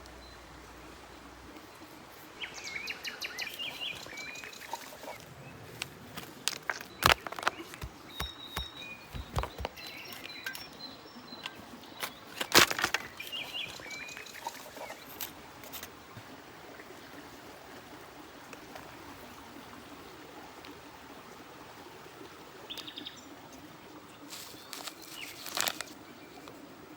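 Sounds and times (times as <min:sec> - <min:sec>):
steady outdoor hiss: 0:00.0 - 0:26.9
birds chirping and trilling: 0:02.4 - 0:15.3
sharp knocks and clicks: 0:06.5 - 0:10.6.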